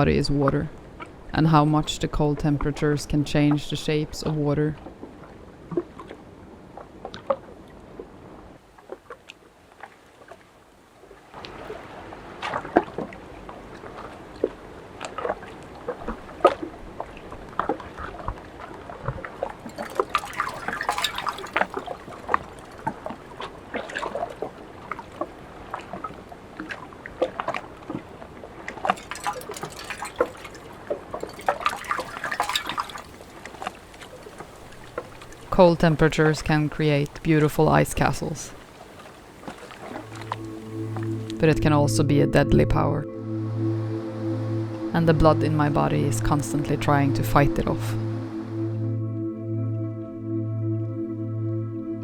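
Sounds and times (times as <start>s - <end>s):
sharp water drips and splashes: 11.3s - 41.4s
water trickling: 11.4s - 26.2s, 27.3s - 48.7s.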